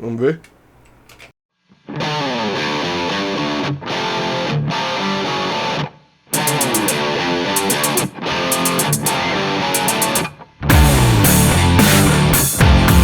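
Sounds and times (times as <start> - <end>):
electric guitar playing runs: 6.4 - 13.0.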